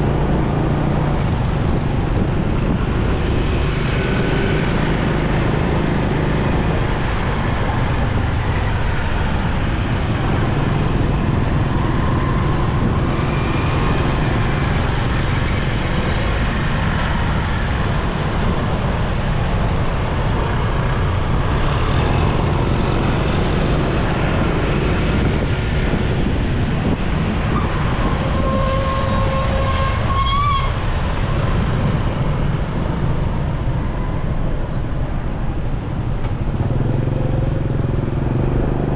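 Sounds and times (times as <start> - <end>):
motorcycle engine and wind rumble: 0.0 - 38.9
vehicle horn: 28.3 - 30.8.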